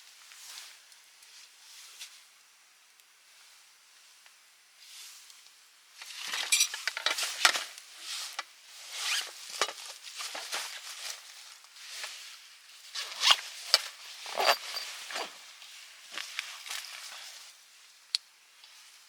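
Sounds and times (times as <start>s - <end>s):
gear rustling and clicking: 13.0s - 15.4s.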